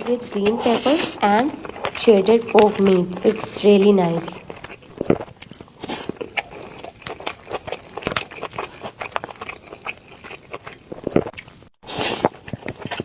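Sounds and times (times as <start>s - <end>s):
close chewing with mouth smacks: 0.0s - 13.0s.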